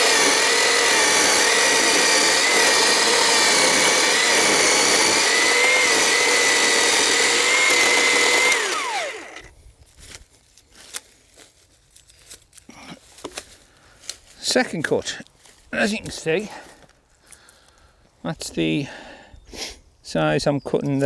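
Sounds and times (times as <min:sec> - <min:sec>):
electric chainsaw cutting log: 0:00.0 - 0:09.5.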